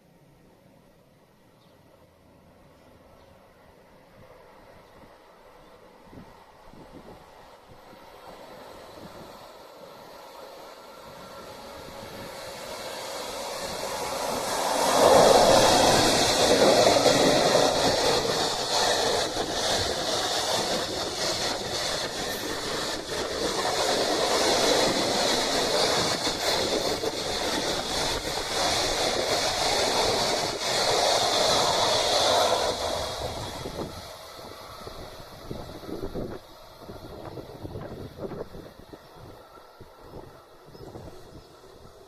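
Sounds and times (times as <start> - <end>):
freight train wheels clattering: 11.3 - 35.0.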